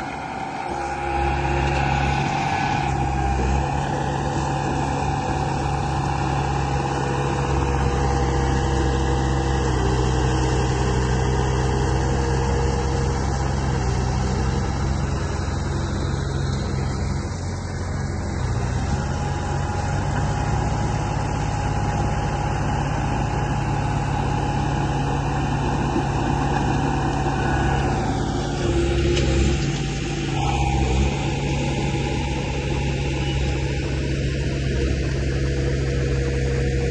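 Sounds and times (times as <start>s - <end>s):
whining motor tones: 0.0s - 36.9s.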